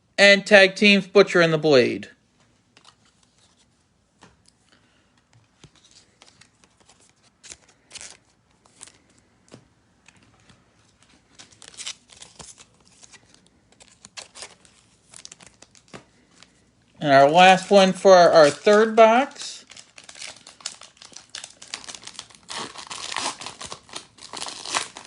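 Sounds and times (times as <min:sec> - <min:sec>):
cards rustling and clicking: 0:02.7 - 0:16.6, 0:17.6 - 0:25.0
foil wrapper crinkling and tearing: 0:11.2 - 0:16.6, 0:17.5 - 0:25.0.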